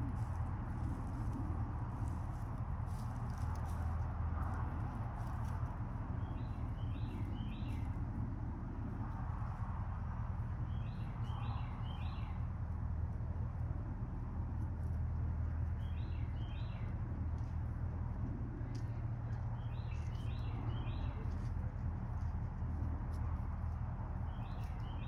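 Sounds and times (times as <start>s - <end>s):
steady low hum: 0.0s - 25.0s
bird chirping: 6.2s - 7.9s, 10.7s - 12.4s, 15.8s - 16.9s, 19.6s - 21.4s, 24.3s - 25.0s.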